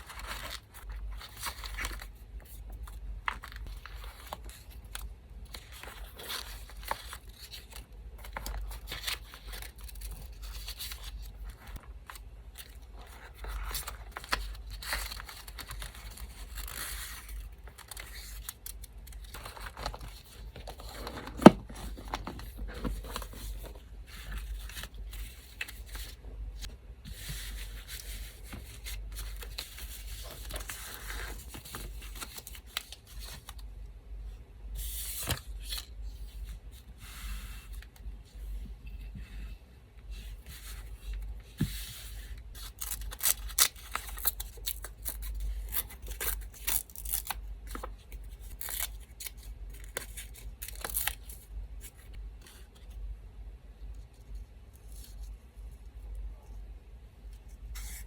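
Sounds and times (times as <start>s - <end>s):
paper rustling and tearing: 42.5s - 51.4s.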